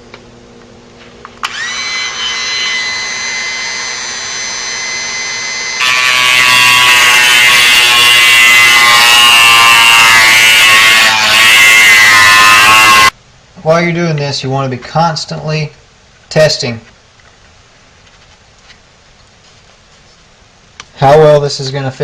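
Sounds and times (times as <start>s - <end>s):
rotary tool whining: 1.4s - 13.1s.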